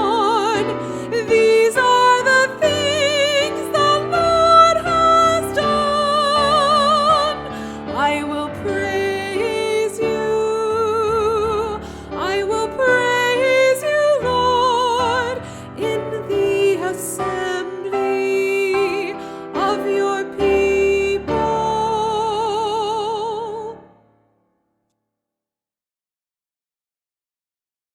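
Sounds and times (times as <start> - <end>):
piano accompaniment: 0.0 - 24.2.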